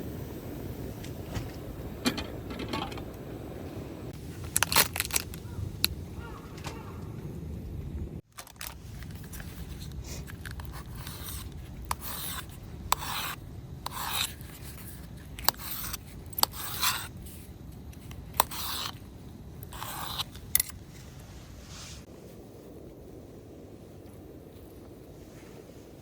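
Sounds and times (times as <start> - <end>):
scraping strokes: 8.8 - 17.6, 18.3 - 19.0, 19.6 - 22.1.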